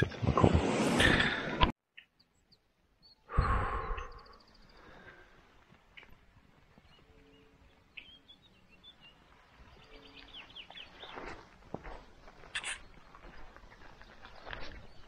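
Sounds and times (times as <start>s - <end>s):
high bird chirps: 2.0s - 5.1s, 6.8s - 11.3s.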